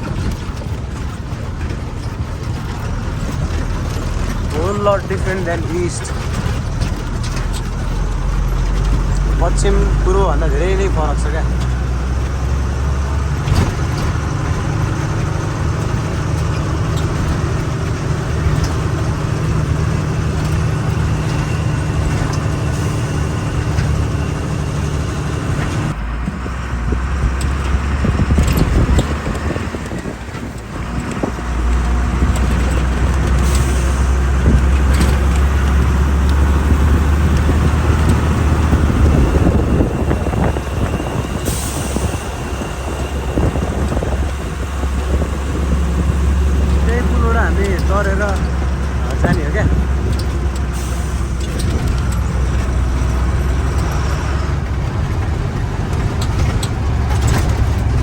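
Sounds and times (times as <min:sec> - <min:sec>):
road noise: 0:00.0 - 0:58.0
truck engine running: 0:00.0 - 0:58.0.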